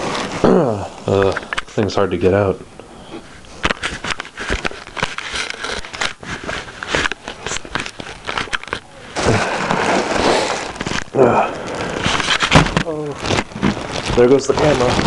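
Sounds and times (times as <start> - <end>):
rustling scrape of cardboard: 0.0 - 0.4, 3.1 - 11.1, 11.7 - 15.0
box packaging crackling: 3.2 - 15.0.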